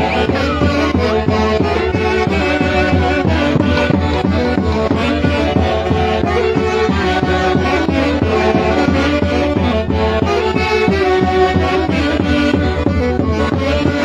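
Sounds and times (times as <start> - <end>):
orchestra playing festive music: 7.9 - 11.1.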